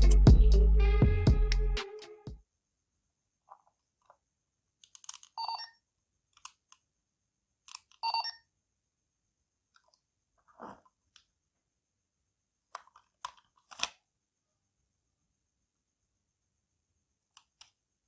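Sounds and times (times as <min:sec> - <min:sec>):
small plastic clicks: 0:04.8 - 0:05.4, 0:06.3 - 0:06.9, 0:07.6 - 0:08.0, 0:12.7 - 0:14.0, 0:17.3 - 0:17.8.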